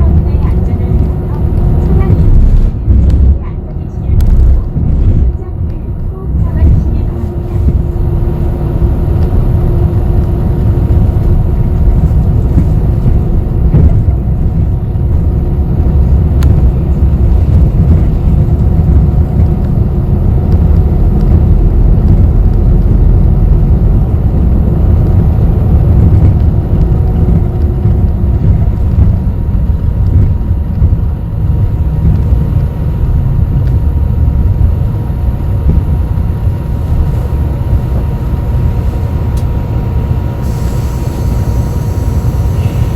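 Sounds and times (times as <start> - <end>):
bus engine and road rumble: 0.0 - 42.9
faint hum: 0.0 - 42.9.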